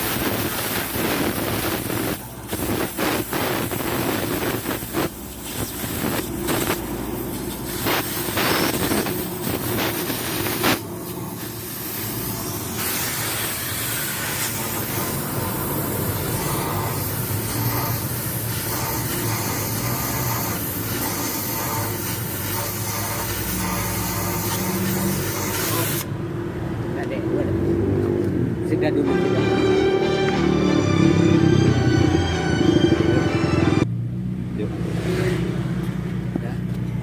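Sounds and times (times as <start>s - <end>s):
short sharp burst: 0.0s - 7.0s, 7.6s - 15.3s
diesel truck engine droning: 28.5s - 34.6s.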